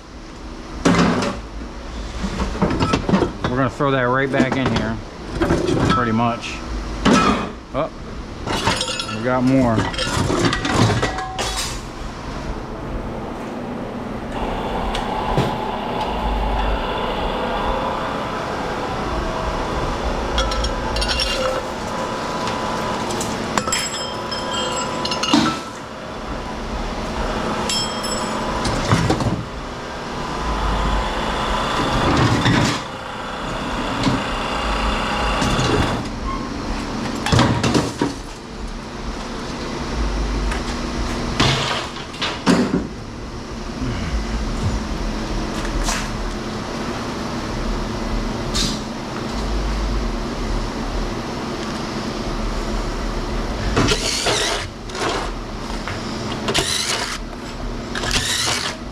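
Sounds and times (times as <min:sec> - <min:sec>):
steady hum: 0:00.0 - 0:58.9
scrap metal clanking: 0:20.3 - 0:25.8.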